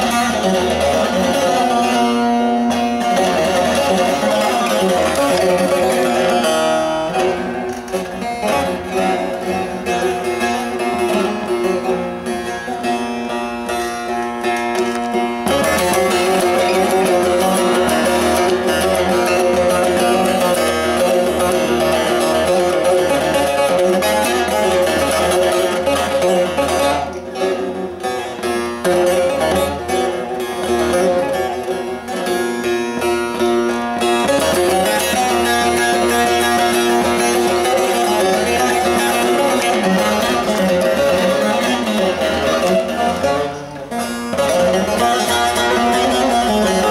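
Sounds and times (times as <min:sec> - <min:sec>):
plucked and strummed saz: 0:00.0 - 0:46.9.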